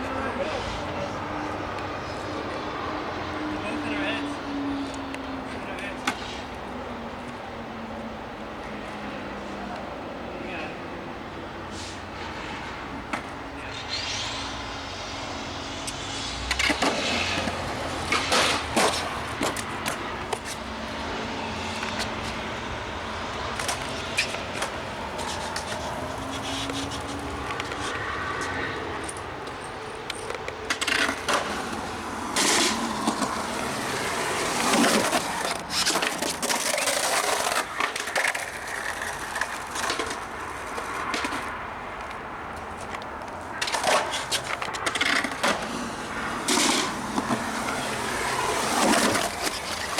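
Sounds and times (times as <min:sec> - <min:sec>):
skateboard wheels rolling on concrete: 0:00.0 - 0:49.9
skateboard clacking on ground: 0:15.8 - 0:49.9.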